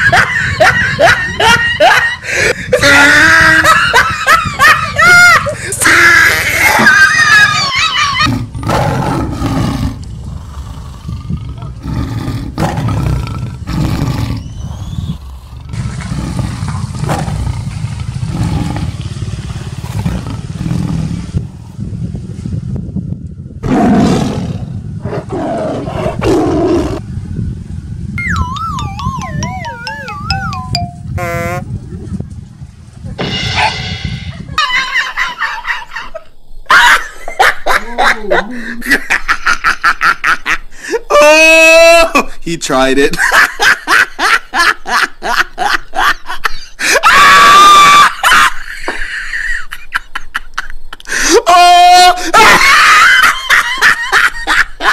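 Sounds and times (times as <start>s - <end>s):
person laughing: 0.0s - 8.3s, 34.3s - 41.3s, 43.1s - 51.5s, 52.2s - 54.9s
tiger roaring: 8.2s - 21.6s, 23.6s - 27.0s
steady low rumble: 9.8s - 23.6s, 26.9s - 35.4s
cartoon falling whistle tones: 28.2s - 31.6s
high-pitched scream: 47.0s - 48.2s.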